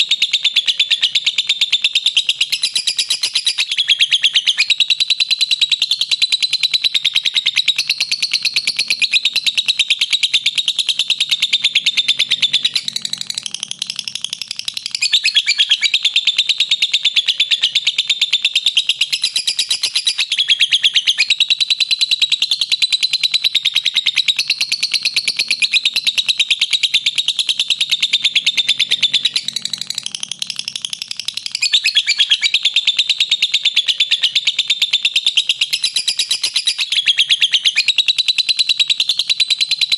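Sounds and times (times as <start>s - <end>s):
lovebird shrill chatter: 11.6s - 17.8s, 25.0s - 38.6s.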